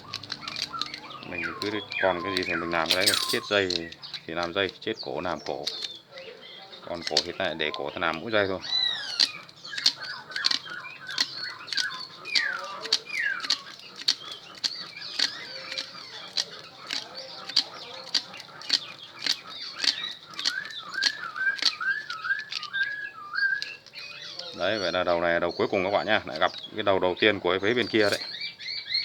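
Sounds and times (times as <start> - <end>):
bird chirps: 0.0 - 29.0
bird whistles: 20.0 - 24.9.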